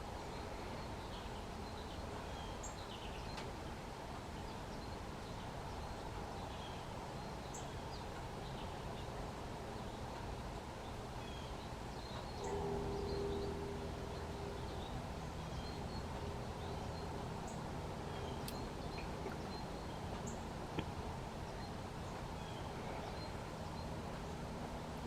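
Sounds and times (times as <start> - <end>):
low outdoor rumble: 0.0 - 25.0
small birds chirping: 4.4 - 24.4
low hum rising: 12.4 - 20.1.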